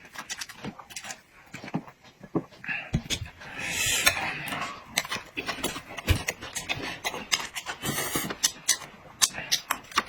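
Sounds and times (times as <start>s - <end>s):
person chewing and lip-smacking: 0.0s - 10.0s.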